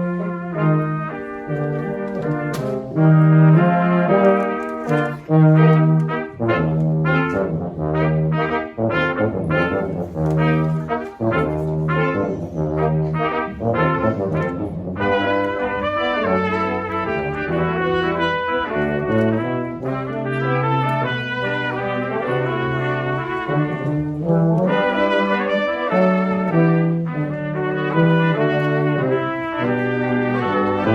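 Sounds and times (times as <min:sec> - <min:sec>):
brass quartet playing: 0:00.0 - 0:30.9.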